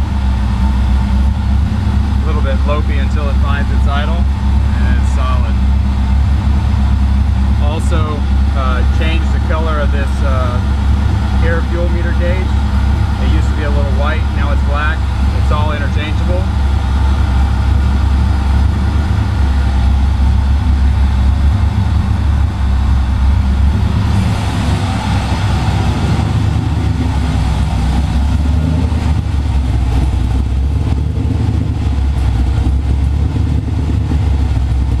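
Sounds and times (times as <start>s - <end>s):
rotary engine idling: 0.0s - 35.0s.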